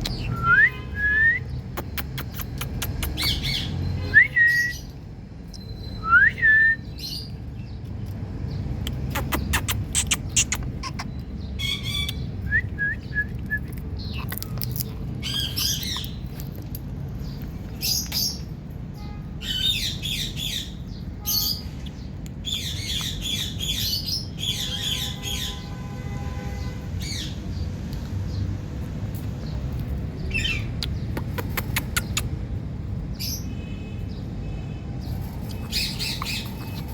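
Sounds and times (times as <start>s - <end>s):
parrot clicks and chirps: 0.0s - 0.3s, 1.6s - 3.5s, 8.8s - 12.4s, 13.3s - 18.4s, 29.6s - 32.4s
parrot harsh screeching squawks: 9.5s - 12.1s.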